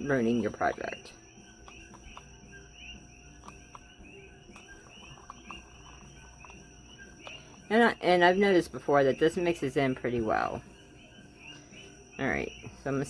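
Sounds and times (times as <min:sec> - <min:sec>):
stir stick squeaking in plastic cup: 0:00.6 - 0:08.1.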